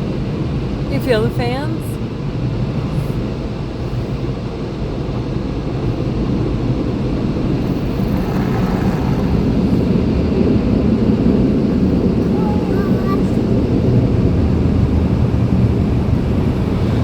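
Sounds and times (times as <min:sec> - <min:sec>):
car wash dryer fans blowing: 0:00.0 - 0:17.0.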